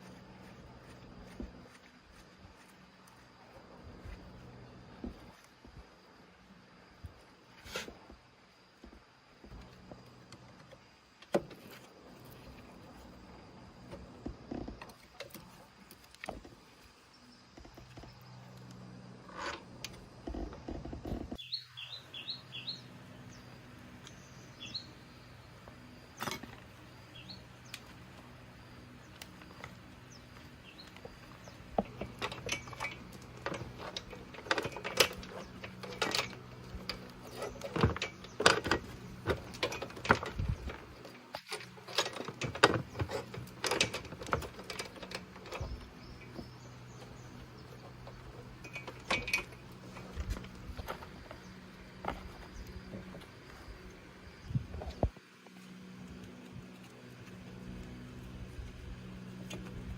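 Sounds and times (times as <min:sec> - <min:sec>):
steady low hum: 0:00.0 - 0:59.9
hand tools and metal clinking: 0:26.0 - 0:54.0.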